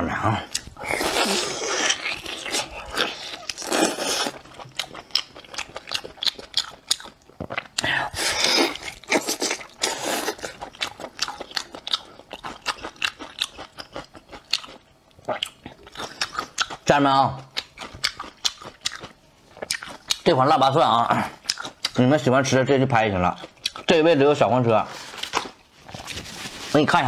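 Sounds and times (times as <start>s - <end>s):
wet chewing clicks and smacks: 4.3s - 7.9s, 10.4s - 16.9s, 17.5s - 20.3s, 21.4s - 22.0s, 23.3s - 24.0s.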